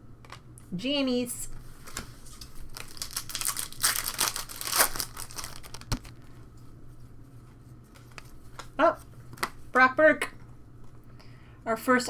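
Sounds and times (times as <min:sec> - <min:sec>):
card pack wrapper tearing and crinkling: 0:02.3 - 0:06.4.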